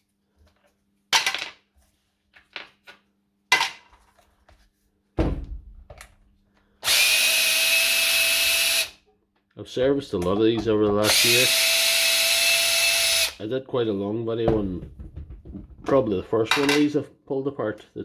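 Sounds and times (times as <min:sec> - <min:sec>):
power screwdriver spinning: 0:06.8 - 0:08.9, 0:11.0 - 0:13.4.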